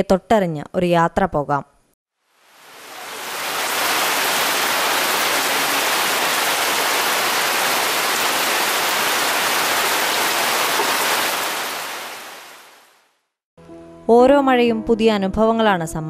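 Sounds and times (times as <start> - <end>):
rain falling on trees: 2.4 - 13.0.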